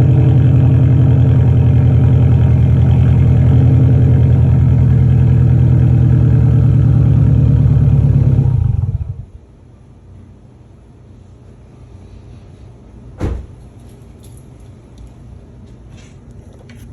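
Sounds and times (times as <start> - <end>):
car engine running: 0.0 - 9.4.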